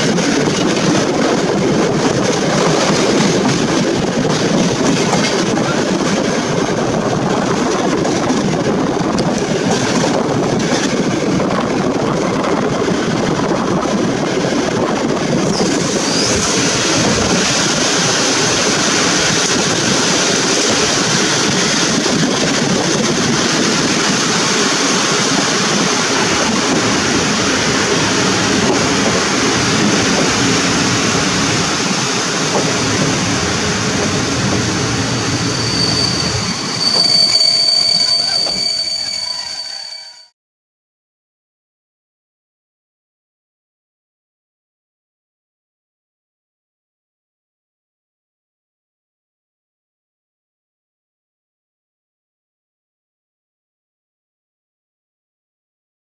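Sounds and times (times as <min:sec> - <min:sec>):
train coaches rolling over rails: 0:00.0 - 0:40.3
high brake squeal: 0:15.5 - 0:16.6, 0:35.1 - 0:40.4.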